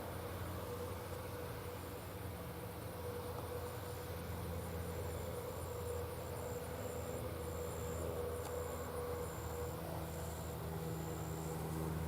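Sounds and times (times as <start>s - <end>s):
insects trilling: 3.0s - 12.0s.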